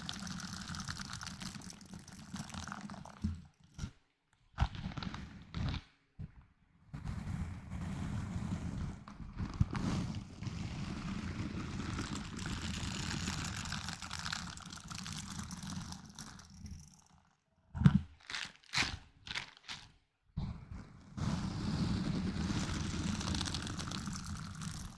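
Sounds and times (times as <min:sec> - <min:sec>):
rubbing and handling an object: 0:20.7 - 0:24.9.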